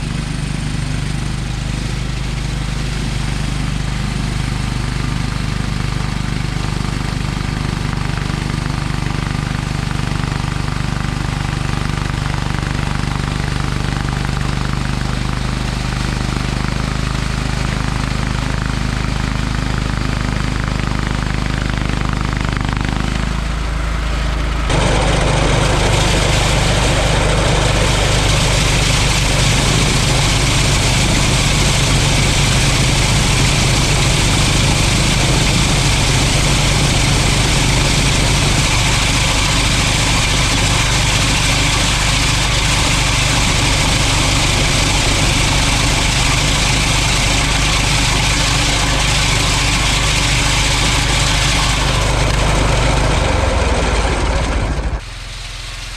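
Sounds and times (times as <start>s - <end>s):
lawn tractor engine running: 0.0s - 55.9s
snowblower hiss: 24.7s - 55.9s.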